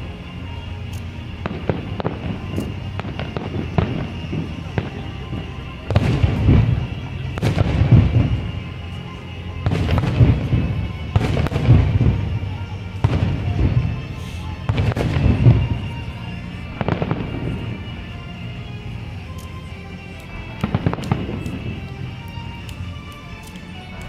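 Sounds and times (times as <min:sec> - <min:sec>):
firework booms: 0:01.4 - 0:08.5, 0:09.6 - 0:12.4, 0:13.0 - 0:14.0, 0:14.7 - 0:16.0, 0:16.8 - 0:17.8.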